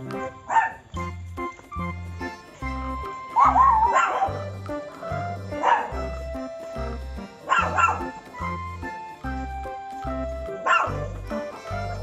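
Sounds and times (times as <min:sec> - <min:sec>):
background music: 0:00.0 - 0:12.0
dog barking: 0:00.4 - 0:00.8, 0:03.3 - 0:04.5, 0:05.5 - 0:06.0, 0:07.4 - 0:08.2, 0:10.6 - 0:11.1
dog whining: 0:03.1 - 0:04.4.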